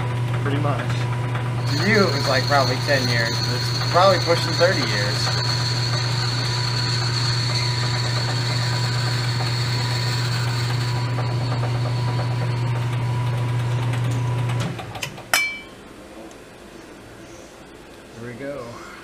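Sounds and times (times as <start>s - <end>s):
metal lathe humming and whining: 1.6s - 14.0s.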